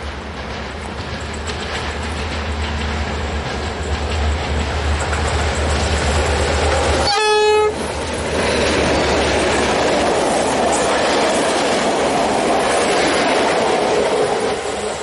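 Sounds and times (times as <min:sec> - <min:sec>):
diesel train engine rumble: 0:00.0 - 0:15.0
train rushing past: 0:00.0 - 0:15.0
train horn blast: 0:07.0 - 0:07.8.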